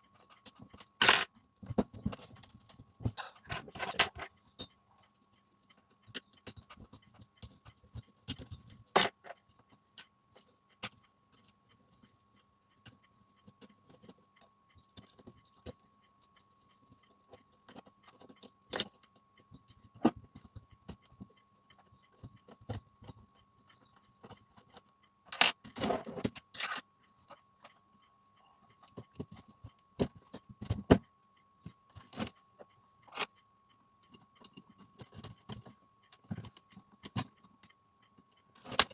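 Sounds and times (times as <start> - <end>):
small metal parts clinking: 1.0 - 1.3.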